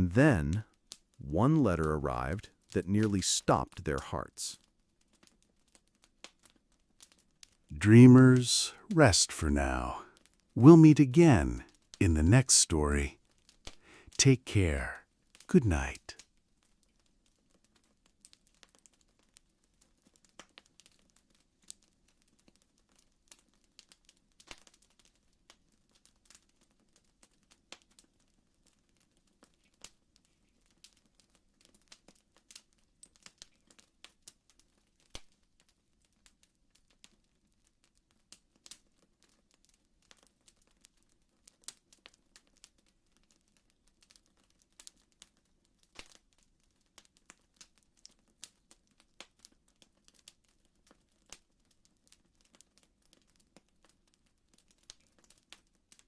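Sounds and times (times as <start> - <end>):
burning wood crackling: 38.2 - 56.0.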